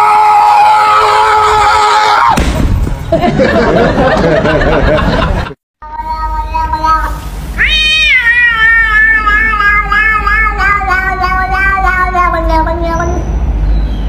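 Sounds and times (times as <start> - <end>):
cat meowing: 5.8 - 13.2.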